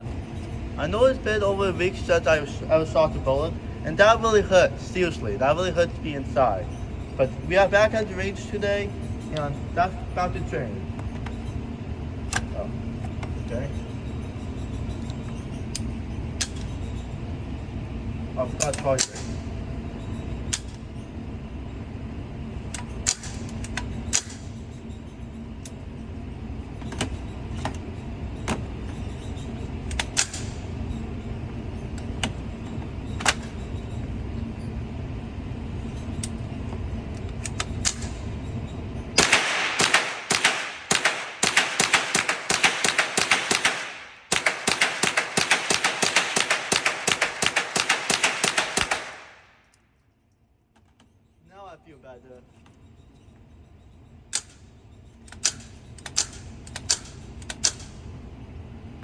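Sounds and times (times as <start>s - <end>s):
low steady rumble: 0.0s - 50.1s
single gunshots: 39.2s - 49.4s
rapid sharp clicks: 39.2s - 49.5s.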